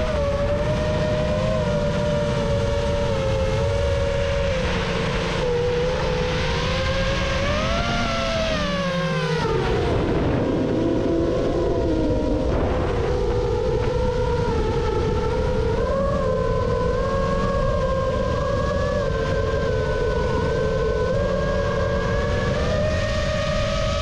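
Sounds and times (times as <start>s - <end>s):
drone motors whining: 0.0s - 24.0s
steady low rumble: 9.5s - 18.7s.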